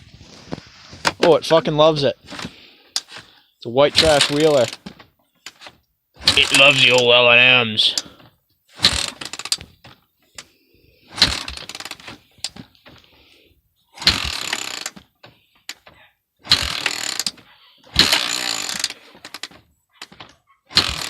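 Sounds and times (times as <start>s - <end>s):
engine cranking without starting: 2.2s - 7.1s, 8.7s - 10.5s, 11.1s - 12.8s, 13.9s - 21.0s.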